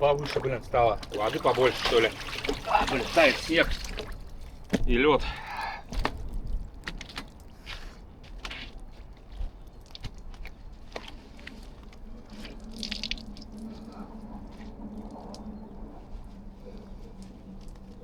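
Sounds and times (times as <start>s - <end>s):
footsteps crunching in slush: 6.0s - 18.0s.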